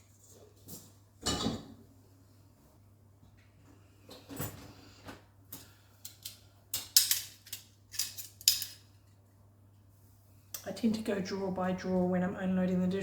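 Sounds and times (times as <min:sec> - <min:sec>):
utensils and dishes clattering: 0:01.2 - 0:01.7, 0:06.1 - 0:08.8.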